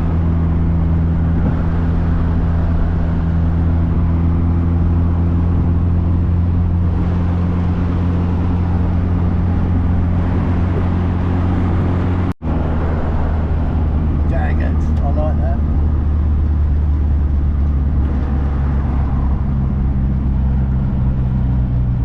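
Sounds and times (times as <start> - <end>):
car engine hum inside cabin: 0.0 - 22.0
tyre rumble: 8.4 - 12.3.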